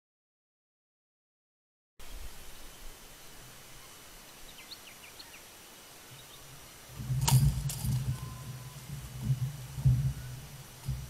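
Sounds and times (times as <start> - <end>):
faint distant bird chirps: 2.0 - 11.0
crow flapping against cage: 7.0 - 11.0
dull thumps: 7.0 - 11.0.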